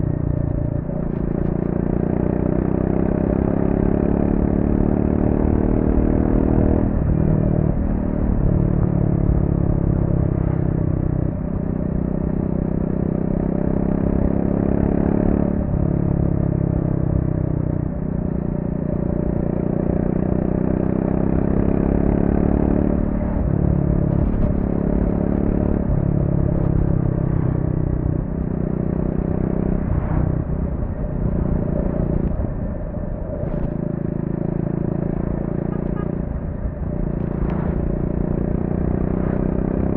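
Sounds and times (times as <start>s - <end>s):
motorcycle engine under way: 18.8s - 32.8s.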